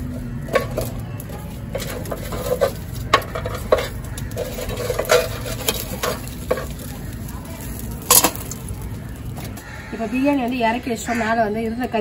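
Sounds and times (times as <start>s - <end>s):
metal spoon scraping a pot: 0.4s - 7.1s.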